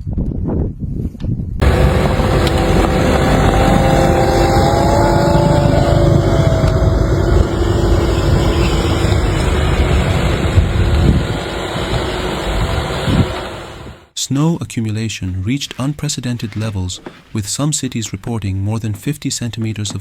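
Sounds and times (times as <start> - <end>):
engine running: 1.6 - 14.1
loud rushing noise: 1.6 - 14.1.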